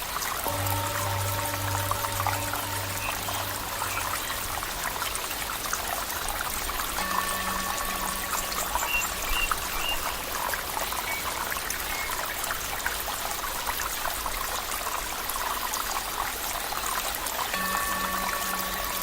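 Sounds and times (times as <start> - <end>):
water flowing and trickling: 0.0 - 19.0
faint steady tone: 0.4 - 12.2, 17.5 - 19.0.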